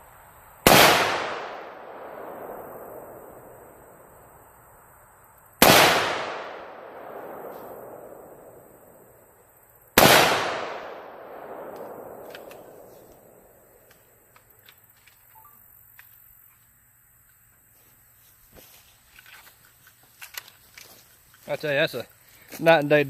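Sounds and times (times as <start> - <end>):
rifle shots: 0.6 - 3.7, 5.6 - 8.6, 10.0 - 13.5
long rolling echo: 0.6 - 4.4, 5.6 - 14.3.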